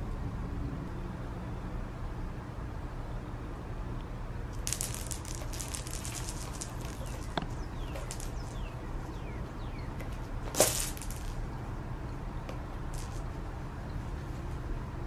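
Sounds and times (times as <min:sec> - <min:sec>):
cat claws scratching rope: 0:04.5 - 0:09.2, 0:10.0 - 0:11.5.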